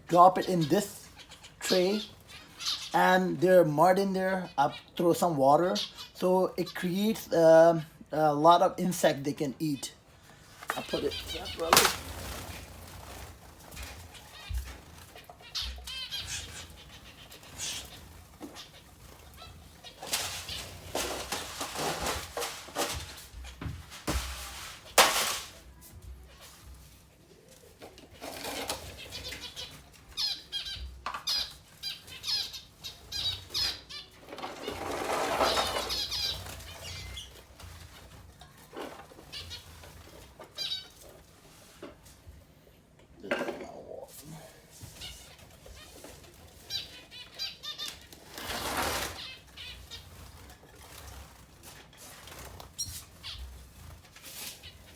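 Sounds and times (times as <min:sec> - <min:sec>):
birds fluttering: 0:00.0 - 0:03.4, 0:10.0 - 0:42.7, 0:43.8 - 0:54.9
finches chirping: 0:00.0 - 0:08.3, 0:10.7 - 0:12.0, 0:13.7 - 0:21.0, 0:28.9 - 0:37.4
birdcage tray rustling and scraping: 0:10.5 - 0:30.3, 0:33.2 - 0:42.5, 0:44.6 - 0:54.9.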